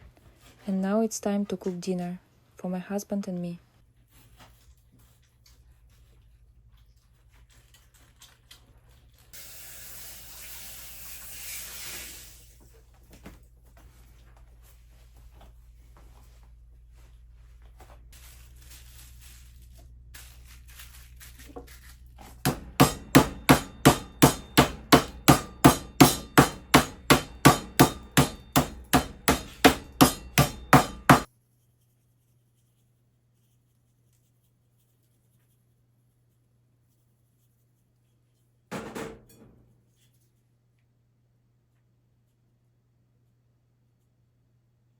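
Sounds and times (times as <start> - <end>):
hiss: 9.4 - 12.6
sharp evenly spaced knocks: 22.4 - 31.3.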